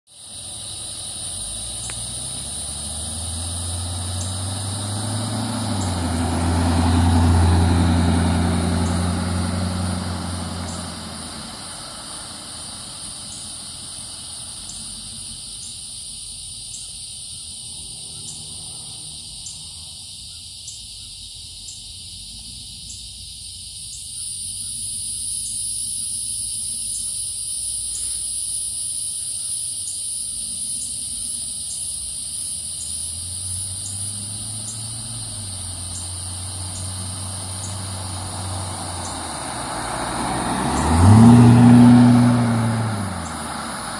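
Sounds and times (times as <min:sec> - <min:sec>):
high-pitched insect drone: 0:00.1 - 0:43.3
vehicle engine passing by: 0:00.2 - 0:16.4, 0:17.6 - 0:20.3, 0:30.4 - 0:43.9.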